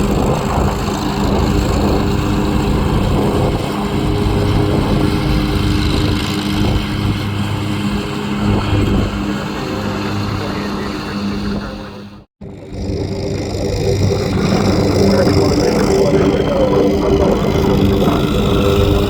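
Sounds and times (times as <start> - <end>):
steady engine drone: 0.0 - 19.0.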